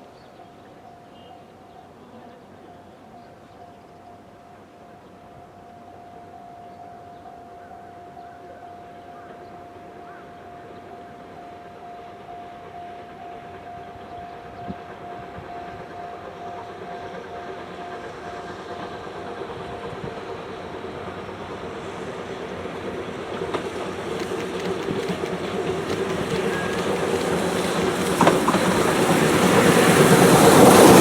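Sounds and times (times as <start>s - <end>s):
steam locomotive approaching: 0.0s - 31.0s
wheels clicking over rail joints: 13.4s - 31.0s.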